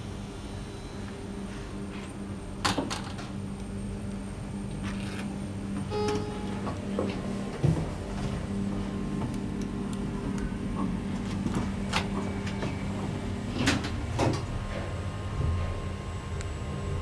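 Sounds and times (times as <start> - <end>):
steady low hum: 0.0 - 17.0
elevator door mechanism clicks: 5.8 - 7.2.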